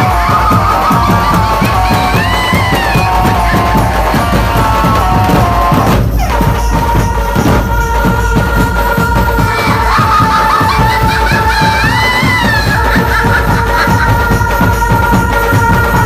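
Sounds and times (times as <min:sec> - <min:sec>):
sustained melody line: 0:00.0 - 0:06.1
fast dense drumming: 0:00.0 - 0:16.0.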